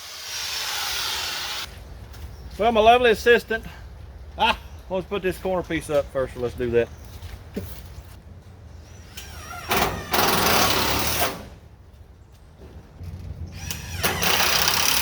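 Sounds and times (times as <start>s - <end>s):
power drill driving screws into metal: 9.2s - 11.5s, 13.6s - 15.0s.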